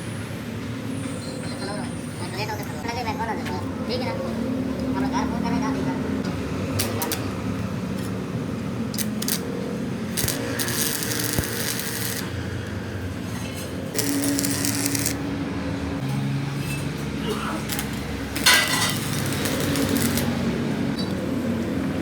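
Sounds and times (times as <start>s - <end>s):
low mechanical hum: 6.0s - 22.0s
metal parts clinking and scraping: 13.3s - 15.2s, 17.7s - 20.3s.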